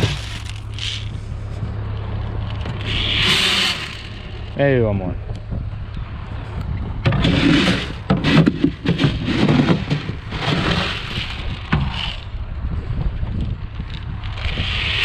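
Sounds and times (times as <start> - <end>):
seed pouring and rattling: 0.0 - 1.1
tractor engine running: 0.0 - 15.0.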